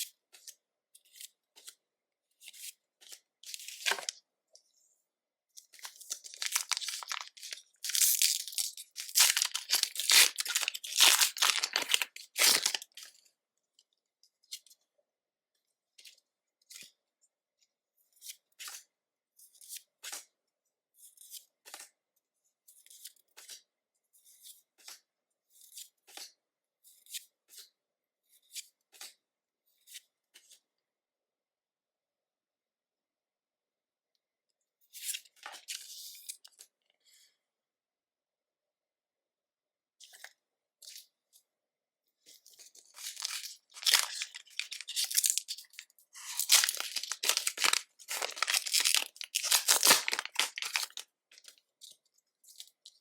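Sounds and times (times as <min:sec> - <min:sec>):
foil wrapper tearing and crinkling: 0:03.6 - 0:04.1, 0:06.1 - 0:13.0, 0:42.9 - 0:51.0.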